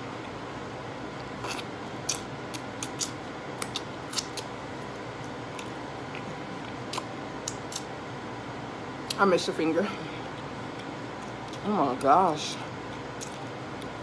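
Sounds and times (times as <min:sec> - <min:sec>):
person chewing crunchy food: 0:01.2 - 0:07.9, 0:12.8 - 0:14.0
wet mouth clicks and smacks: 0:01.5 - 0:04.5, 0:06.9 - 0:07.9.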